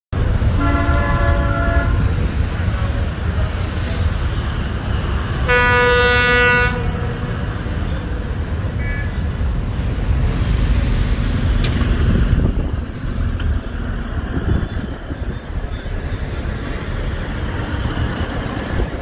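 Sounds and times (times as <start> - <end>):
train rumbling past: 0.2 - 19.0
train horn blast: 0.5 - 2.2, 5.4 - 7.4.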